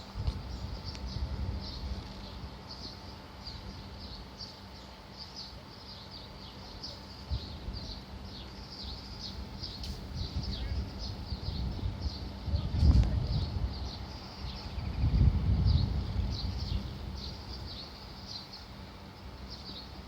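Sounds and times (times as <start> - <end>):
bird chirping: 0.5 - 12.7, 13.3 - 20.0
low rumble: 9.1 - 17.8.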